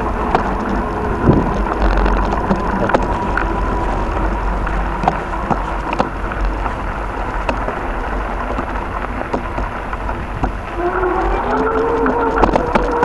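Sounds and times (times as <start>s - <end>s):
sharp clicks and ticks: 0.0s - 13.0s
wind buffeting microphone: 0.0s - 13.0s.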